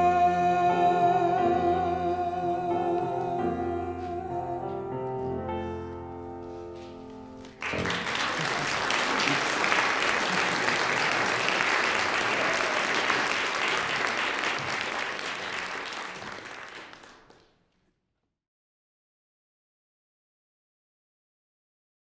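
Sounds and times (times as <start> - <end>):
audience applause: 7.4 - 17.5.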